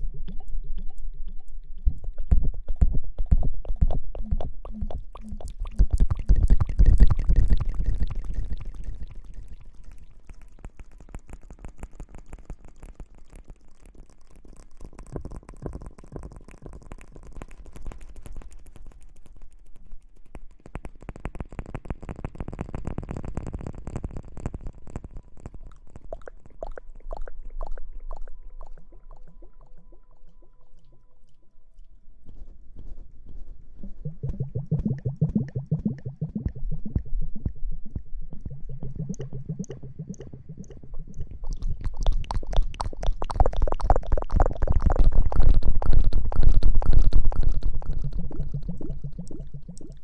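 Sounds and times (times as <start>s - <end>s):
asmr rustling and squishing: 38.3s - 50.0s.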